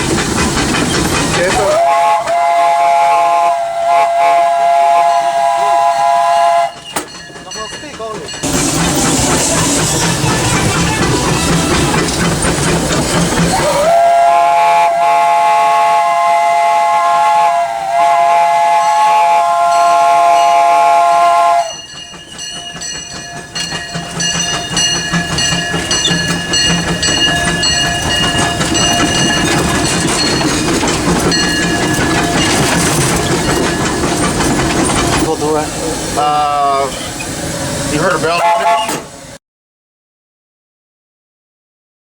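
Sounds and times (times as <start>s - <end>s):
locomotive running with rapid clicking: 0.0s - 2.5s, 5.7s - 14.1s, 20.4s - 37.3s, 37.9s - 39.1s
steam locomotive whistle: 1.5s - 7.0s, 13.4s - 22.0s, 35.9s - 39.4s.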